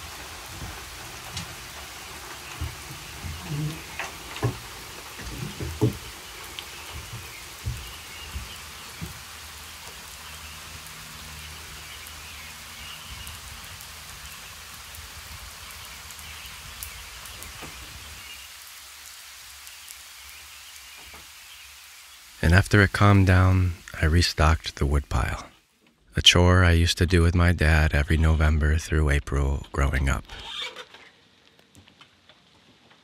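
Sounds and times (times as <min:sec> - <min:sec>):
steady rain falling: 0:00.0 - 0:33.0
soft low thumps: 0:06.8 - 0:09.2.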